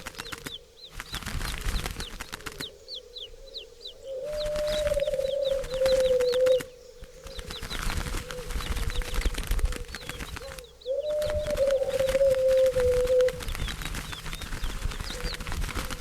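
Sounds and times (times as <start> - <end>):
dove purring coo: 4.0 - 7.4, 8.2 - 13.7.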